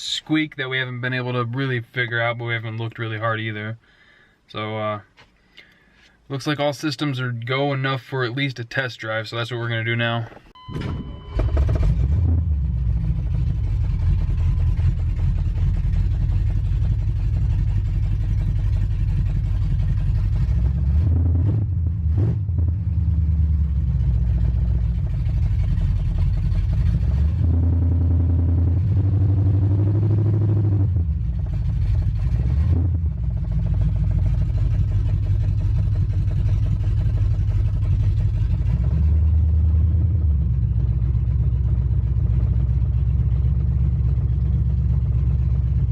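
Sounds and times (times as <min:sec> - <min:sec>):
truck engine rumbling and revving: 0:10.4 - 0:45.9.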